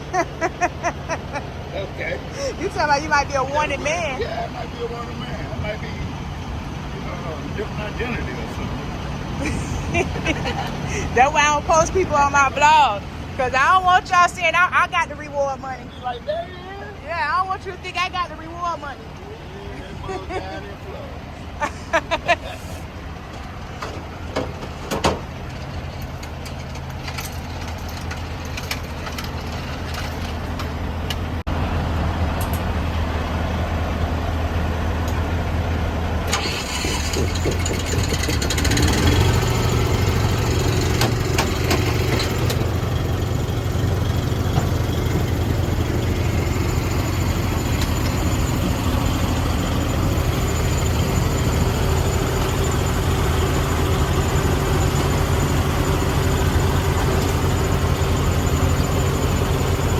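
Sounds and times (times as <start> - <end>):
truck engine idling: 0.0 - 59.9
engine clicks and knocks: 23.1 - 31.5, 36.2 - 59.9.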